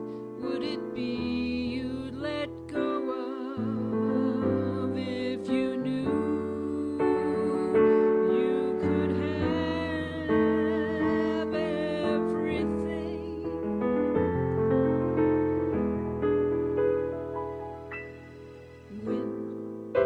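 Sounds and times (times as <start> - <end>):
slow piano music: 0.0 - 20.0.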